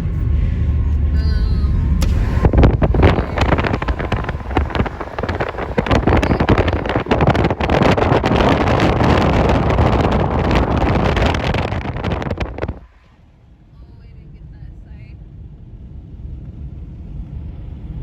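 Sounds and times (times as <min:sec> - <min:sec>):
wind buffeting microphone: 0:00.0 - 0:14.2
road and engine rumble: 0:00.0 - 0:18.0.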